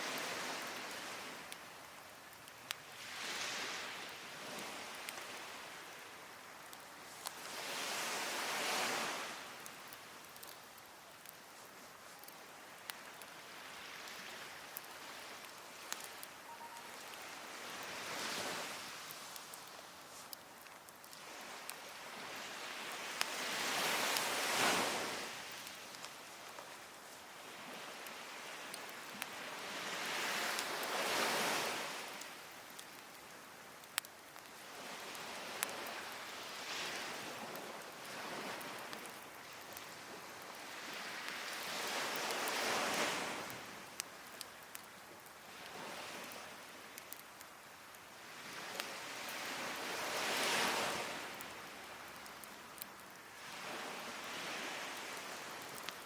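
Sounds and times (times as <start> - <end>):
waves washing on beach: 0.0 - 56.0
wood fire popping: 9.4 - 18.0, 32.2 - 41.0
sea waves breaking: 21.2 - 25.8, 34.7 - 43.8.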